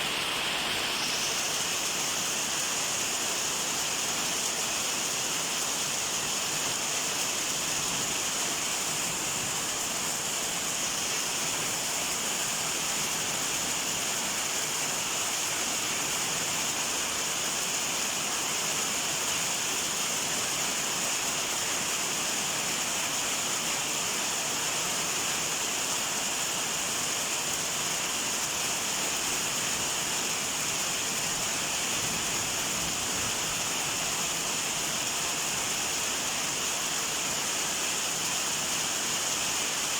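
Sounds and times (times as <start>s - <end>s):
heavy rain falling: 26.5s - 39.9s.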